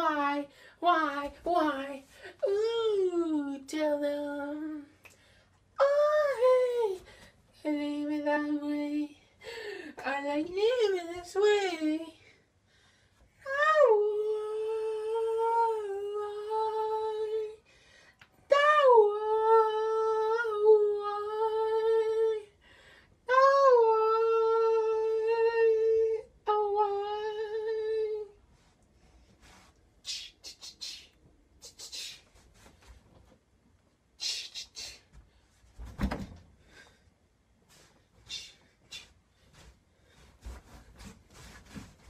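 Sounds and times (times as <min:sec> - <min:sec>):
faint rustling: 0:35.1 - 0:42.0
dull thump: 0:35.8 - 0:36.5.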